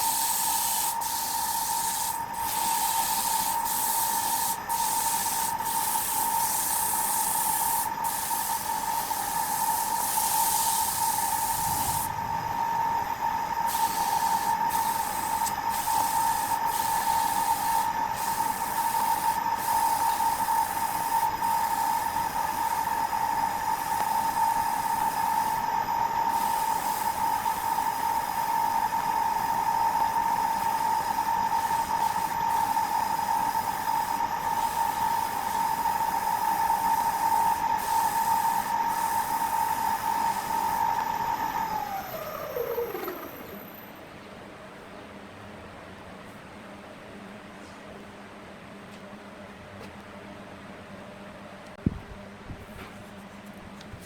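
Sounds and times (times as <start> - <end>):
wood lathe whining: 38.7 - 43.8
tool cutting spinning wood: 39.5 - 43.7.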